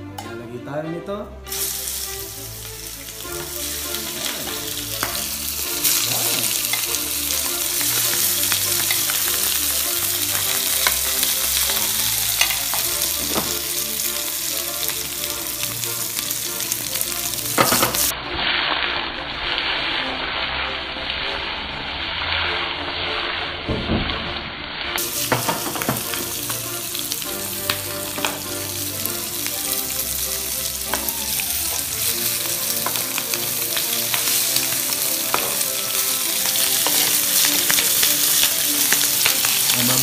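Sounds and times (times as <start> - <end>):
prawns sizzling in hot oil: 1.5 - 23.5, 24.1 - 40.0
metal tongs clicking on pan: 10.3 - 12.9, 35.3 - 35.6.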